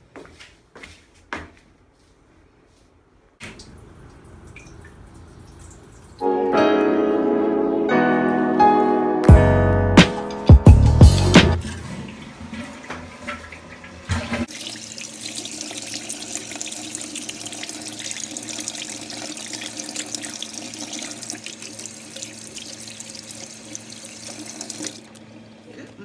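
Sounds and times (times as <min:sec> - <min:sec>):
tap water running into sink: 0:03.4 - 0:06.2, 0:11.5 - 0:25.2.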